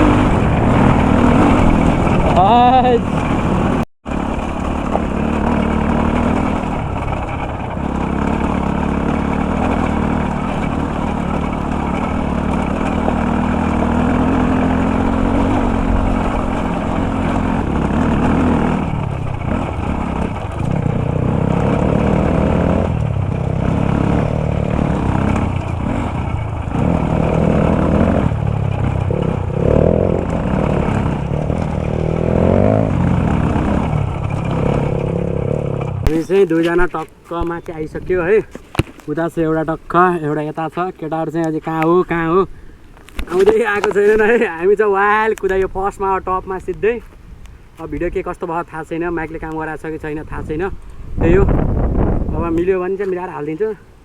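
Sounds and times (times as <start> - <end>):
dirt bike engine revving: 0.0 - 40.4.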